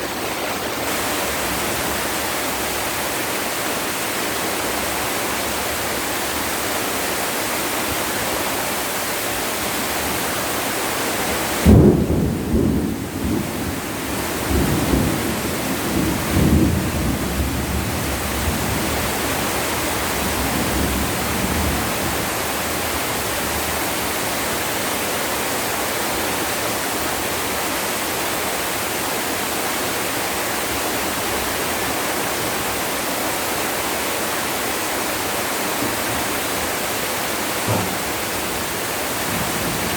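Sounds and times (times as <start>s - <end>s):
heavy rain falling: 0.0s - 39.9s
thunder clap and rumbling: 11.6s - 22.9s, 37.6s - 39.9s.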